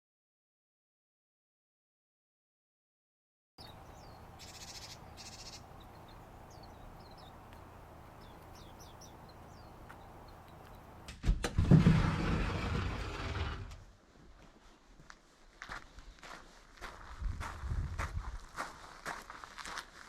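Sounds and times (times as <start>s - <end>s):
small birds chirping: 3.6s - 11.1s
loud rolling scraping noise: 11.6s - 13.9s.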